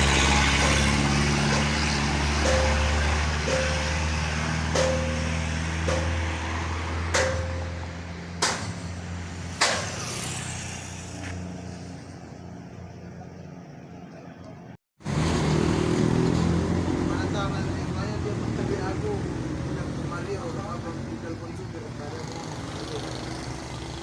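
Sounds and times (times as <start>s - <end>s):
large vehicle engine running: 0.0s - 24.0s
sharp knocks: 0.5s - 8.9s, 9.6s - 10.0s.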